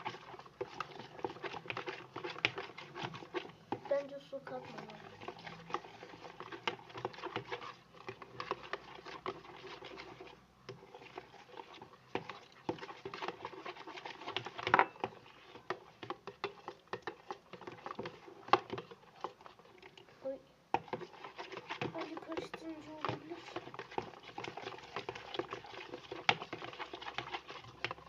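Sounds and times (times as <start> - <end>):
spoon scraping a bowl: 0.0 - 4.0, 4.6 - 20.1, 20.8 - 28.0.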